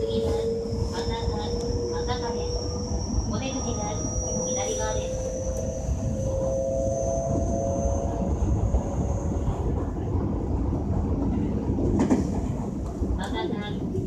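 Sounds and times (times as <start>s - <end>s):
steady high-pitched tones: 0.0s - 9.2s
train running gear rumble: 0.0s - 14.0s.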